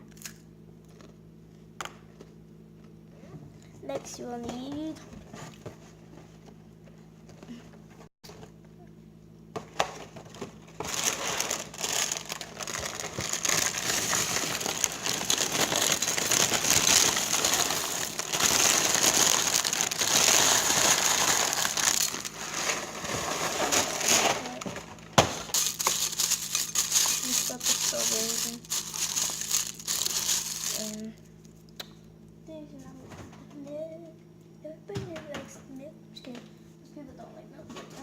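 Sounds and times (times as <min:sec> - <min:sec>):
plastic bag crinkling: 0:10.2 - 0:31.1
flakes shaken out: 0:10.8 - 0:24.6, 0:25.5 - 0:31.1.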